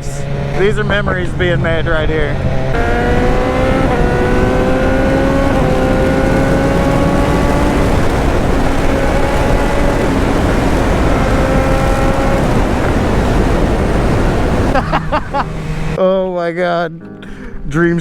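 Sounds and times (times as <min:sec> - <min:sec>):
heavy wind rush: 0:00.0 - 0:16.0
motorcycle engine pulling: 0:00.0 - 0:16.0.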